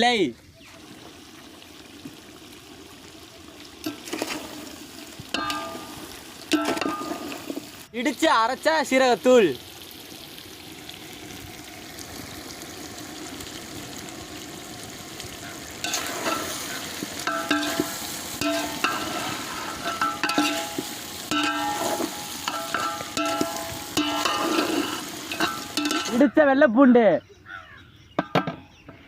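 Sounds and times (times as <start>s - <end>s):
chicken sizzling in a pan: 0.6s - 26.3s
spoon scraping and clinking pan: 3.8s - 4.6s, 5.3s - 7.7s, 15.8s - 26.2s.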